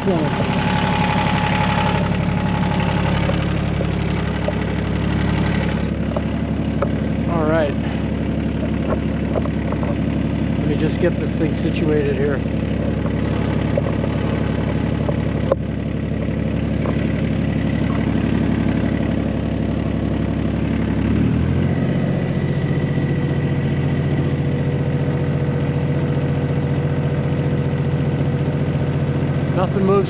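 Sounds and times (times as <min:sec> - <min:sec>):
sharp engine knock: 0:00.0 - 0:21.0
tractor diesel engine running: 0:00.0 - 0:30.0.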